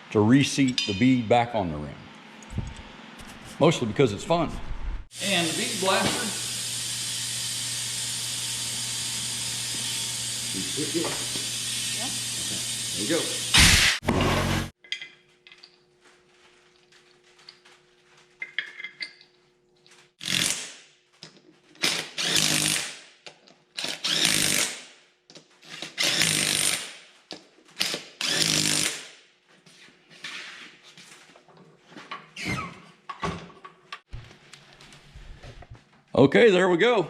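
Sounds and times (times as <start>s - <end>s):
compressed air blast: 13.0s - 14.7s.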